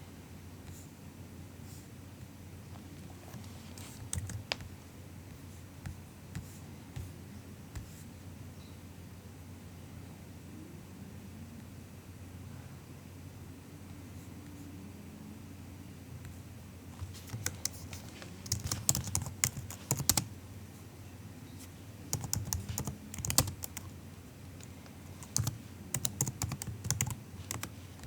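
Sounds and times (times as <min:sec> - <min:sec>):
laptop keyboard typing: 0:03.8 - 0:04.7, 0:17.0 - 0:20.3, 0:22.1 - 0:24.0, 0:24.6 - 0:28.0.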